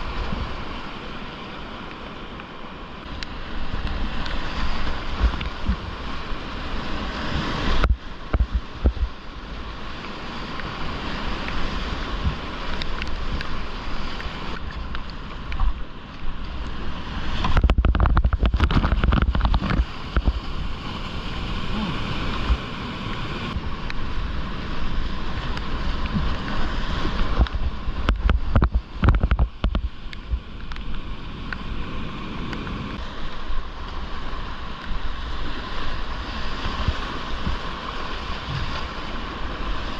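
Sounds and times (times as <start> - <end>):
wind buffeting microphone: 3.0 - 9.2, 10.8 - 34.2.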